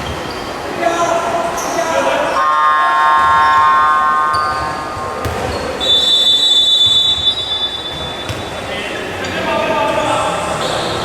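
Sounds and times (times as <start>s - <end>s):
din of arena crowd: 0.0s - 11.0s
high whistle-like tone: 5.8s - 8.0s.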